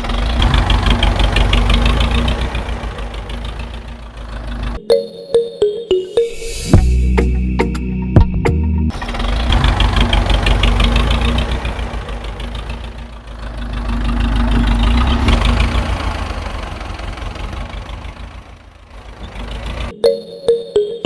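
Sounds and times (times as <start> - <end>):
tractor engine knocking: 0.0 - 4.8, 8.9 - 19.9.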